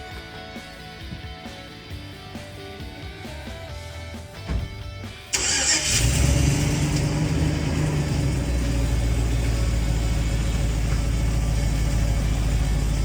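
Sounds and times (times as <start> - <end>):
background music: 0.0 - 10.4
vehicle engine cranking and idling: 4.4 - 13.0.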